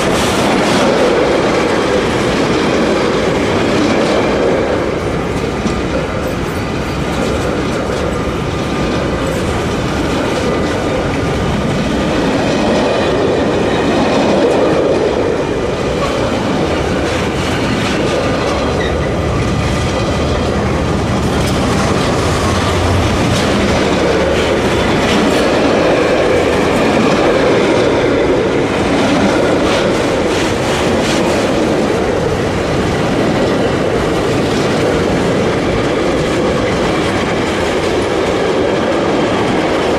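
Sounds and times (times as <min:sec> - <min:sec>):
train wheels rumbling on rail: 0:00.0 - 0:39.9
wheels clicking over rail joints: 0:00.0 - 0:39.9.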